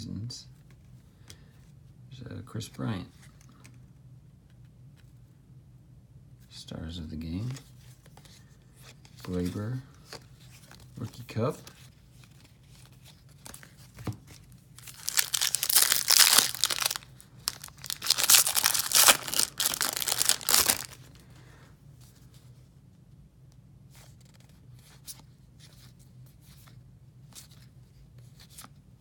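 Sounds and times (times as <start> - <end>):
wrapper tearing and crinkling: 14.8 - 21.2.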